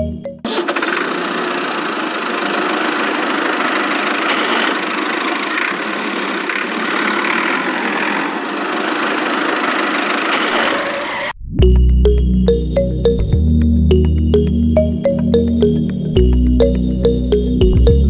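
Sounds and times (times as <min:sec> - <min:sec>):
small motor buzzing: 0:00.5 - 0:10.9.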